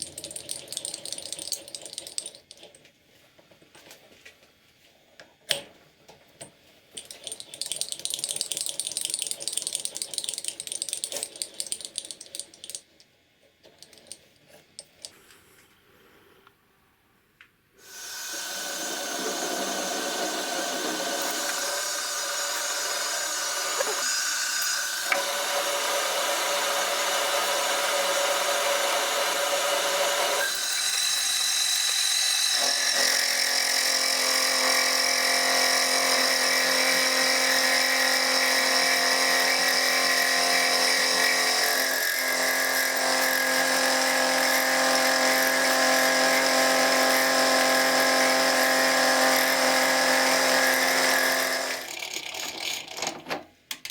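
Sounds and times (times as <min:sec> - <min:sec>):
power tool motor whine: 0:17.8 - 0:51.9.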